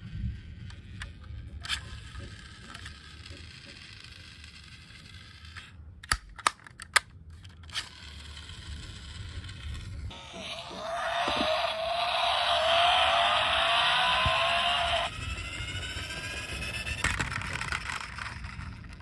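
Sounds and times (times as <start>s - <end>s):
low hum: 8.7s - 19.0s.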